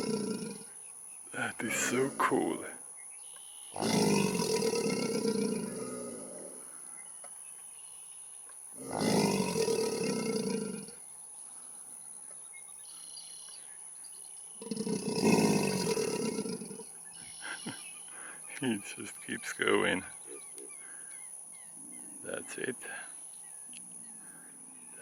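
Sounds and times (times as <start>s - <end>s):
alligator bellowing: 0.0s - 0.8s, 1.4s - 2.7s, 3.7s - 6.8s, 8.8s - 11.0s, 14.6s - 17.0s.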